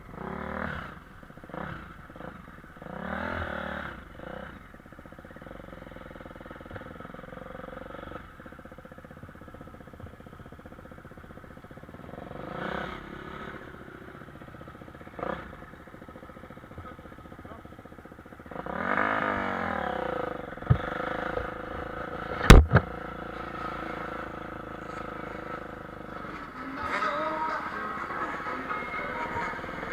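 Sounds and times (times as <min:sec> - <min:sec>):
motocross bike engines revving: 0:00.0 - 0:04.6, 0:11.9 - 0:17.8, 0:18.4 - 0:29.9
sharp knocks: 0:22.4 - 0:22.9.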